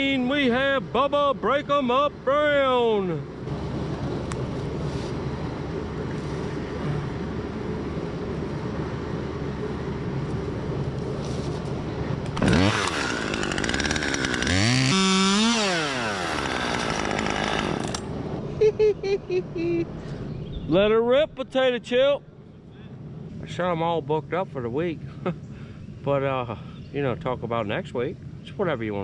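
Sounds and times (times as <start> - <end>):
chainsaw idling and revving: 12.4 - 18.1.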